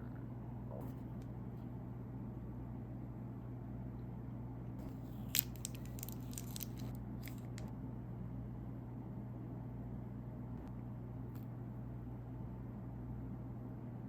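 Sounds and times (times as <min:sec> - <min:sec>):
plastic wrapper crinkling and tearing: 0:05.1 - 0:07.7.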